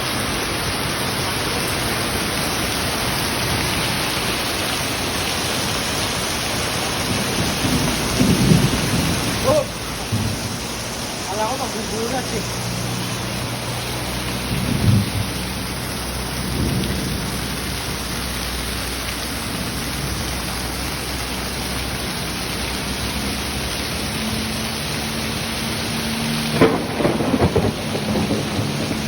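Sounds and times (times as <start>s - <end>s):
heavy rain pouring: 0.0s - 29.0s
low thumps and rumbles: 6.6s - 18.6s.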